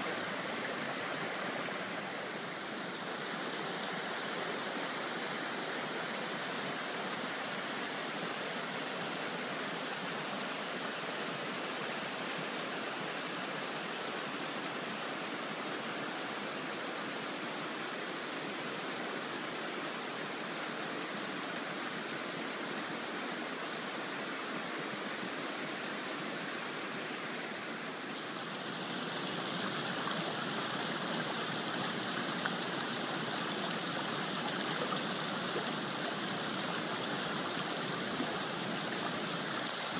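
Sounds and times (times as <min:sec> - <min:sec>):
waterfall roaring: 0:00.0 - 0:16.8, 0:26.0 - 0:39.9.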